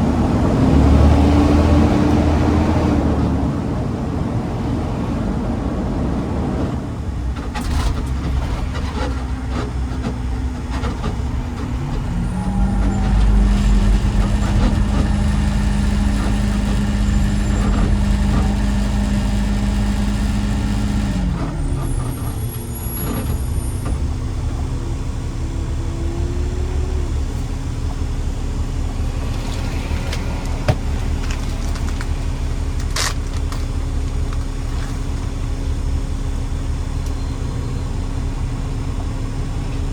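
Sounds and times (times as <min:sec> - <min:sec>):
garbage truck diesel engine: 0:00.0 - 0:39.9.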